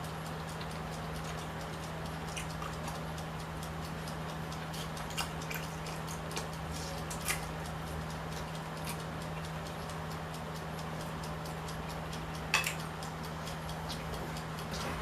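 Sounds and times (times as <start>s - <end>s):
low hum and hiss: 0.0s - 15.0s
chewing clicks and smacks: 0.3s - 10.0s, 12.6s - 15.0s.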